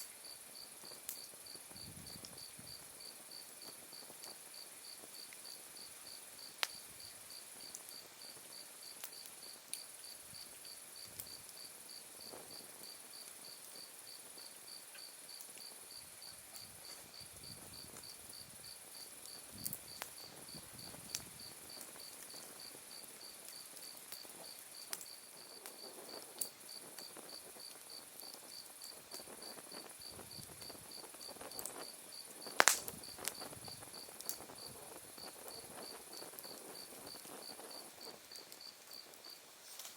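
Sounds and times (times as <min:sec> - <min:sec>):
firewood popping: 0:29.1 - 0:39.9.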